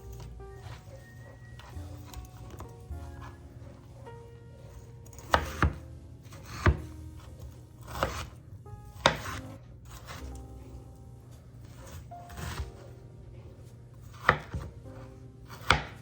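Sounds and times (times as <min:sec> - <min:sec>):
knife blade knocking cutting board: 0:05.1 - 0:05.8, 0:09.0 - 0:09.4, 0:14.1 - 0:14.7, 0:15.5 - 0:16.0.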